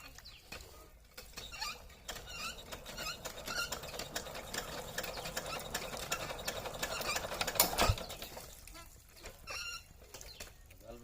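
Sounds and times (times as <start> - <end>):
sewing machine clattering: 1.2 - 8.5.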